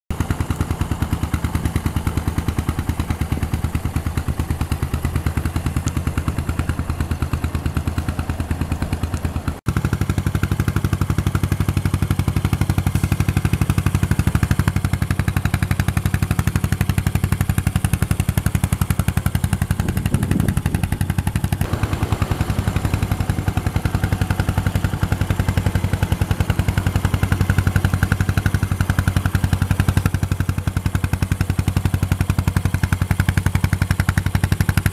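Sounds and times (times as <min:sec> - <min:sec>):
motorcycle engine idling: 0:00.1 - 0:34.9.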